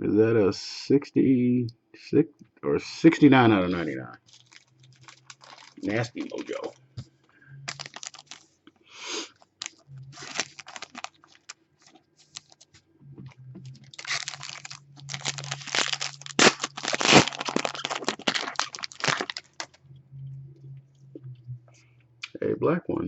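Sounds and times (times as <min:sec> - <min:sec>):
packaging crinkling and tearing: 0:04.2 - 0:06.8, 0:07.7 - 0:08.5, 0:09.4 - 0:12.8, 0:13.8 - 0:19.8
sharp cracks: 0:15.2 - 0:19.7.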